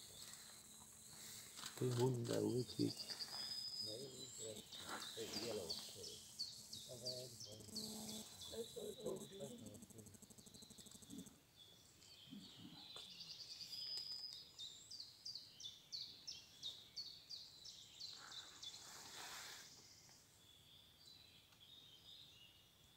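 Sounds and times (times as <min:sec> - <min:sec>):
faint forest ambience: 0:00.0 - 0:22.9
small bird singing: 0:00.0 - 0:22.9
short soft hiss: 0:18.6 - 0:20.2.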